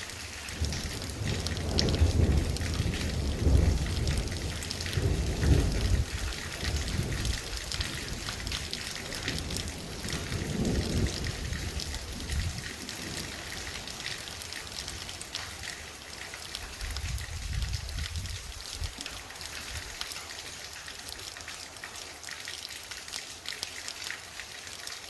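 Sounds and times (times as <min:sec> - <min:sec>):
heavy rain falling: 0:00.0 - 0:25.0
low thunder rumbling: 0:00.6 - 0:14.1, 0:16.8 - 0:19.0.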